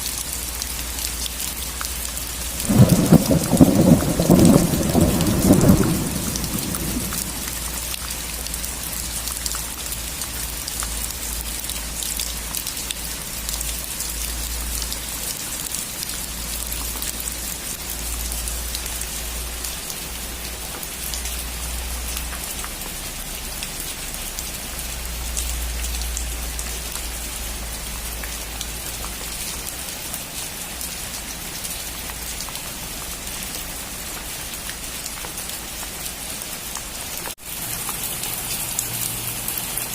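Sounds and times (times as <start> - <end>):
rain on a roof: 0.0 - 39.9
thunder rumble: 2.5 - 8.0.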